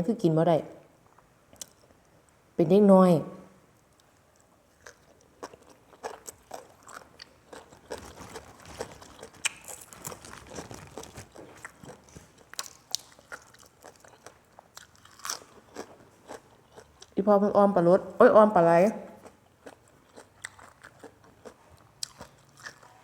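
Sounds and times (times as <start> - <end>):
person chewing crunchy food: 4.0 - 17.2, 19.2 - 23.0.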